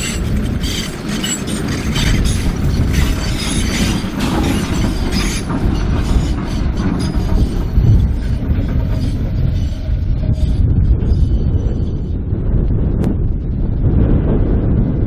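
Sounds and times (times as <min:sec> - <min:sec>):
train wheels clattering over rail joints: 0:00.0 - 0:11.3
faint wheel squeal: 0:00.0 - 0:11.4.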